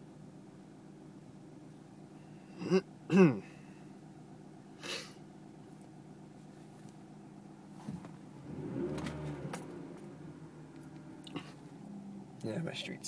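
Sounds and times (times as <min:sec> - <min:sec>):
car engine and road drone: 0:00.2 - 0:13.0
car rumbling over rough street: 0:07.4 - 0:13.0.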